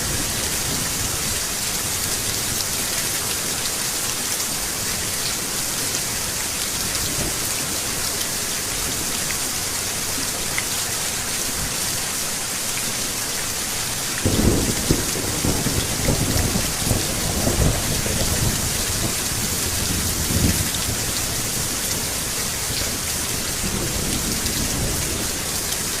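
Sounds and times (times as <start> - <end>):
steady rain pouring: 0.0 - 26.0
thunder rumbling: 14.2 - 21.1.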